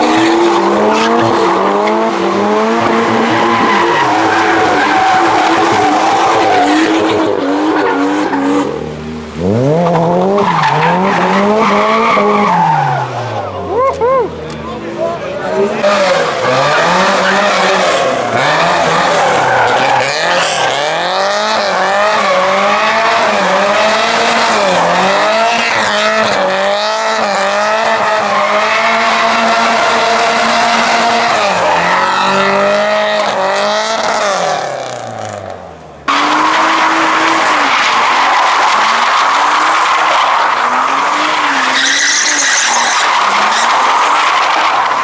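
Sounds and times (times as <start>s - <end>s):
car engine revving: 0.0s - 45.0s
tyres squealing: 36.1s - 45.0s.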